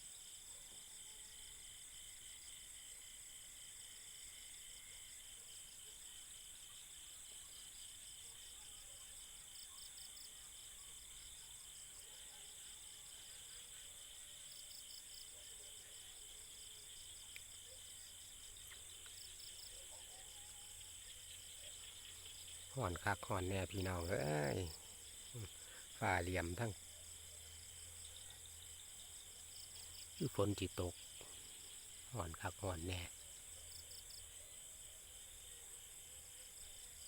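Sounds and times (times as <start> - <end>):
crickets and insects trilling: 16.2 - 34.4.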